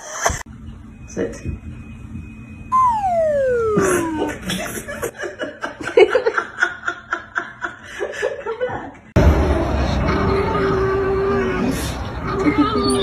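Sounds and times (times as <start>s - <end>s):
steady held tone: 2.8s - 5.1s.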